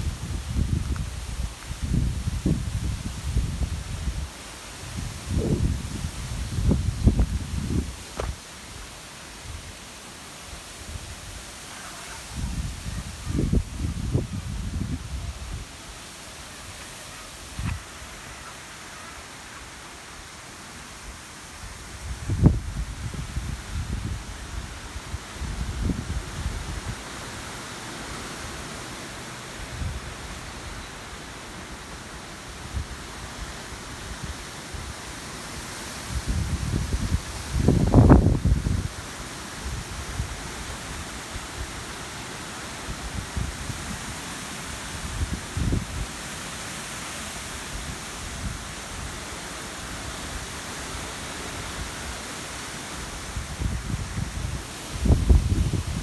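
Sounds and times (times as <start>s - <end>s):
wind buffeting microphone: 0.0s - 8.4s, 12.3s - 15.7s, 35.6s - 41.0s, 53.2s - 56.0s
wind rushing over cornfield: 0.0s - 56.0s.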